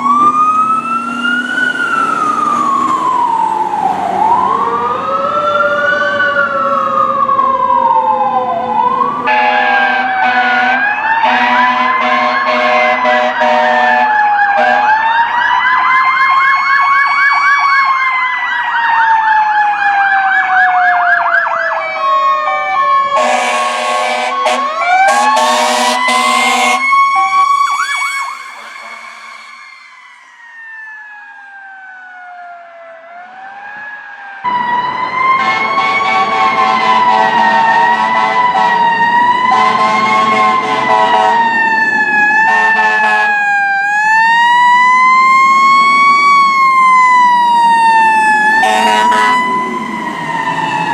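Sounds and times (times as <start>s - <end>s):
sirens wailing: 0.0s - 50.9s
air horn blasts: 9.3s - 15.0s, 23.2s - 29.7s, 35.4s - 38.9s, 39.5s - 41.5s, 42.5s - 43.4s, 48.6s - 49.6s.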